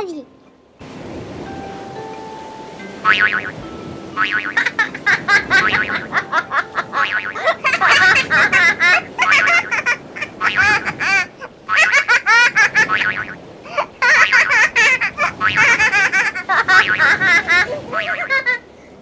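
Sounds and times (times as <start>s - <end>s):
child giggling: 4.6s - 10.0s, 13.7s - 18.7s.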